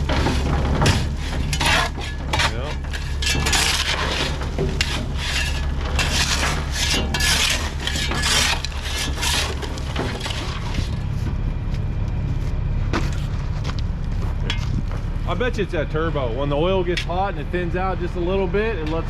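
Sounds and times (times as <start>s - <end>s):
scraping and crunching asphalt: 0.0s - 15.6s
low engine hum: 7.6s - 19.0s.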